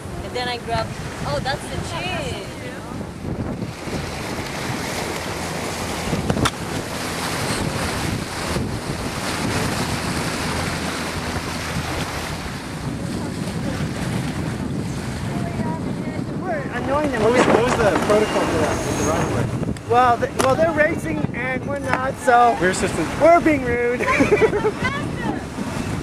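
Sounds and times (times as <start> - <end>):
water rushing past hull: 0.0 - 26.0
wind buffeting microphone: 0.0 - 26.0.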